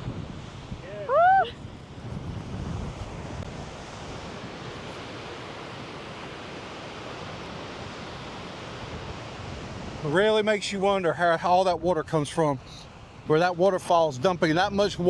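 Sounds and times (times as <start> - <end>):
wind on microphone: 0.0 - 10.1
waterfall rushing: 0.6 - 2.1.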